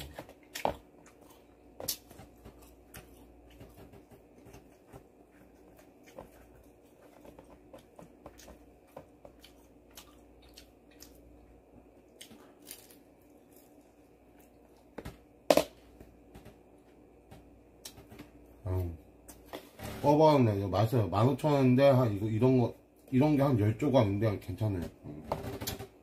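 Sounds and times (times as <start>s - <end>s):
chewing and biting fried food: 0.0s - 15.0s.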